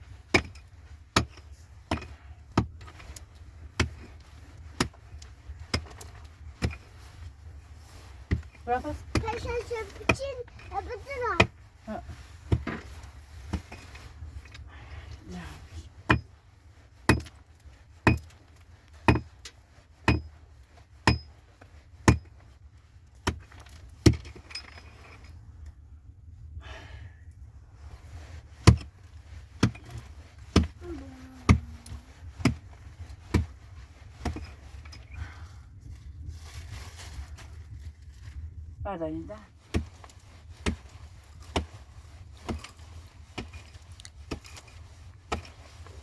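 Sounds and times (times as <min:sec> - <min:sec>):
hand tool striking hard surface: 0:19.1 - 0:19.3, 0:20.0 - 0:20.3, 0:21.0 - 0:21.3.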